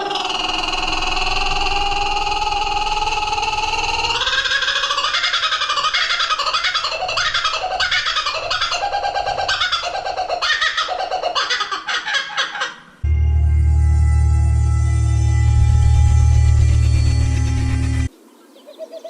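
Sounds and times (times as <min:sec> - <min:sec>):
bird calling harshly: 0:00.0 - 0:12.9
low ambient music: 0:00.3 - 0:04.5, 0:13.0 - 0:18.1.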